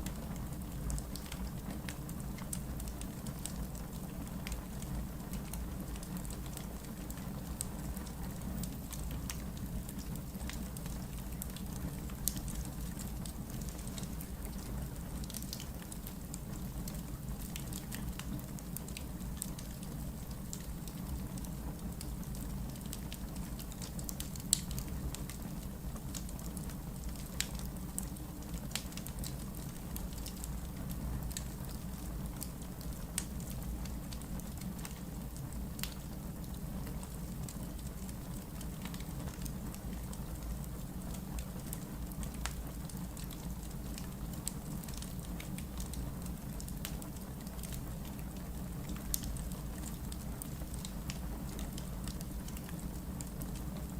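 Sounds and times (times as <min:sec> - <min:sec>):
wood crackling and popping: 0:00.0 - 0:53.9
fire rumbling: 0:09.2 - 0:53.9.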